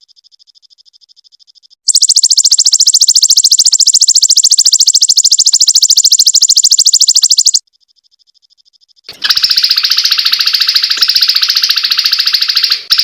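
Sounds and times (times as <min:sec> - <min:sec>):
faint bird trill: 0:00.0 - 0:13.0
bird singing fast high trill: 0:01.9 - 0:07.6.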